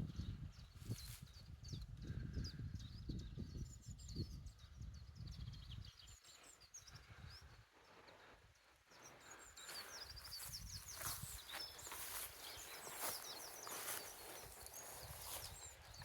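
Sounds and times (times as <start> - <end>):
birds chirping and twittering: 0.0 - 16.0.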